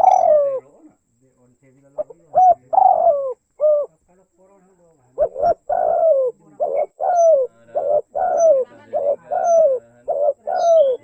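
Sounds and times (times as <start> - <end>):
dove cooing: 0.0 - 0.8, 1.9 - 4.0, 5.2 - 11.0.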